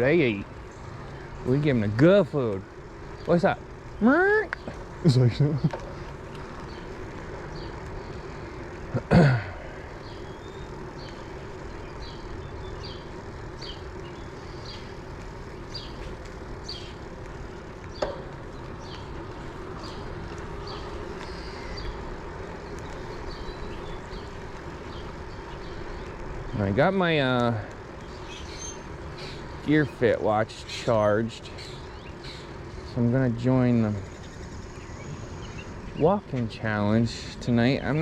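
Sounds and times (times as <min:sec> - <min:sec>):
road and wind noise: 0:00.0 - 0:38.0
man clearing throat: 0:08.9 - 0:09.7.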